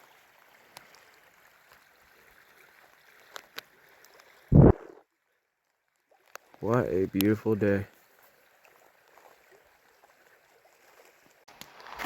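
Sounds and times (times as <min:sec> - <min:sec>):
stream water running: 0:00.0 - 0:12.0
loud low thump: 0:04.5 - 0:05.0.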